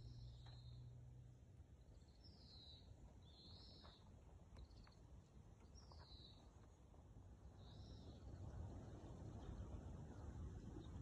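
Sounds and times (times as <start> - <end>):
bird calls: 0.0 - 0.9, 1.8 - 5.0
faint low rumble: 0.0 - 11.0.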